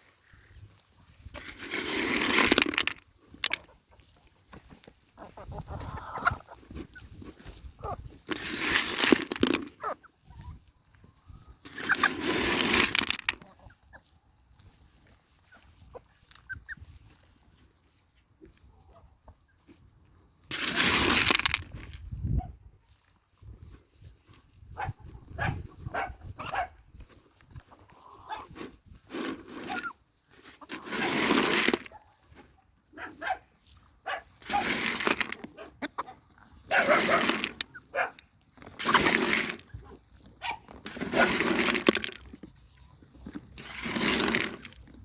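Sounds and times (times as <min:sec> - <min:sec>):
farm animal calls: 0:03.4 - 0:08.8, 0:09.6 - 0:12.6, 0:13.4 - 0:19.8, 0:24.8 - 0:26.8, 0:27.5 - 0:28.8, 0:29.6 - 0:41.7.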